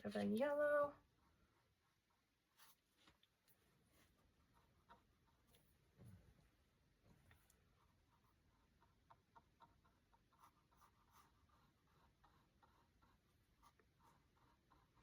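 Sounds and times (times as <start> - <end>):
paintbrush strokes on canvas: 1.0 - 6.3, 7.4 - 15.0.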